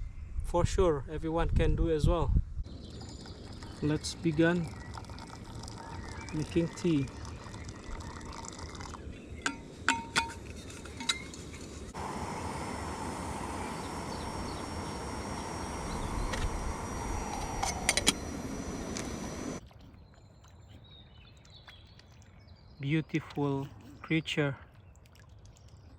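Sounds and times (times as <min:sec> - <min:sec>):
steady rushing noise: 0:11.8 - 0:19.6.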